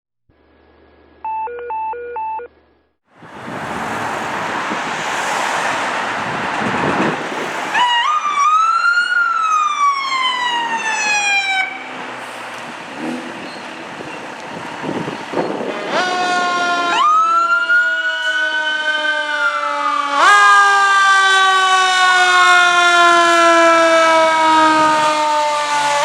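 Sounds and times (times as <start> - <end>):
loud rushing noise: 3.1 - 8.0
electronic siren wail: 7.7 - 11.8, 15.7 - 26.0.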